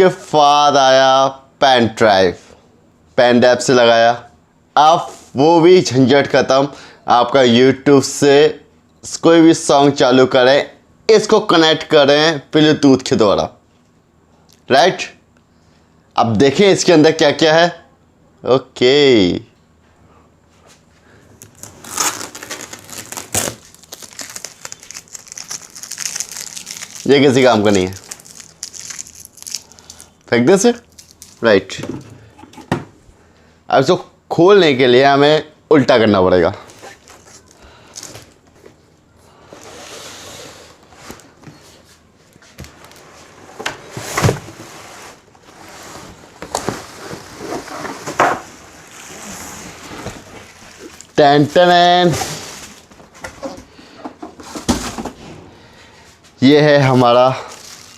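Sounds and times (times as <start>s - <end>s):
packaging rustling and crinkling: 21.4s - 31.7s, 36.6s - 38.7s, 42.2s - 43.4s, 44.2s - 53.5s, 56.9s - 57.9s
cardboard scraping and rustling: 42.6s - 53.6s.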